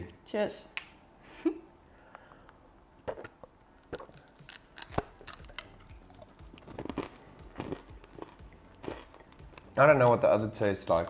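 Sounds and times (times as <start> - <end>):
candy shell crunching: 3.1 - 9.7
chewing crackles: 3.1 - 9.8.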